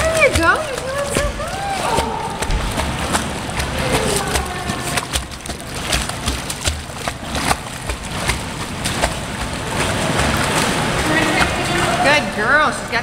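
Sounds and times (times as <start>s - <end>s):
dog paddling water splashing: 0.0s - 13.0s.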